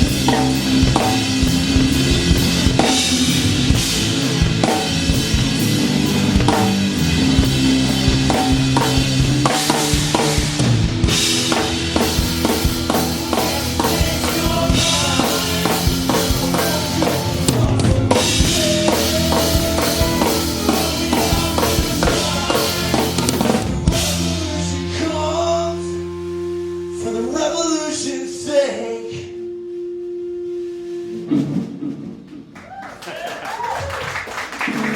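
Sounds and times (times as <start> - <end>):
drum kit playing: 0.0 - 27.6
guitar and bass: 0.0 - 31.6.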